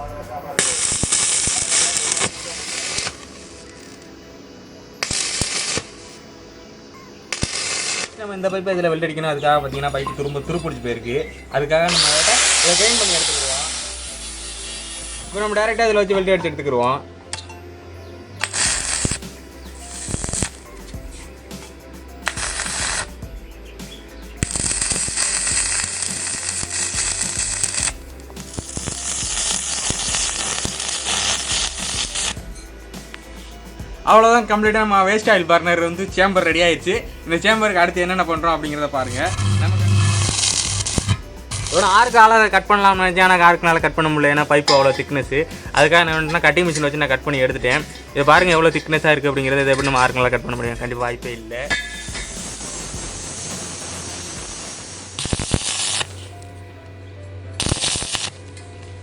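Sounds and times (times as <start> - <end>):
loud crackling hiss: 0.0 - 16.5, 18.3 - 56.6, 57.6 - 58.4
faint background music: 0.0 - 59.0.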